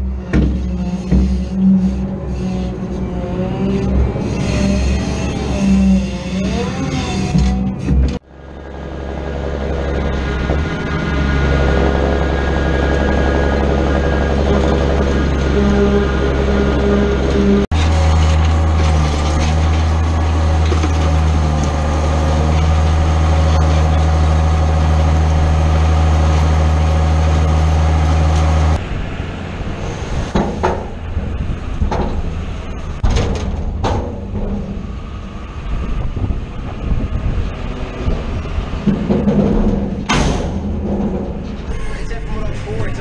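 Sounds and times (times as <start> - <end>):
large engine under heavy load: 0.0 - 43.0
uneven engine noise: 0.0 - 43.0
sharp mechanical knocks: 38.8 - 41.7.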